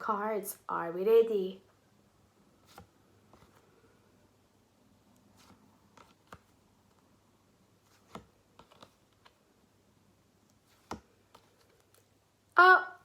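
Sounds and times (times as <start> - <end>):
faint clicks and taps: 5.1 - 7.1, 7.8 - 9.4.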